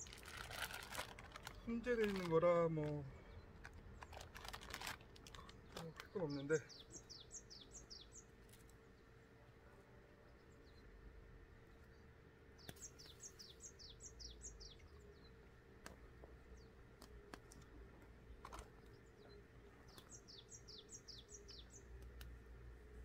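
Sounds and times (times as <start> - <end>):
songbird chirping: 0.0 - 23.0
faint sharp clicks: 12.6 - 13.1, 17.0 - 19.0, 21.9 - 22.4.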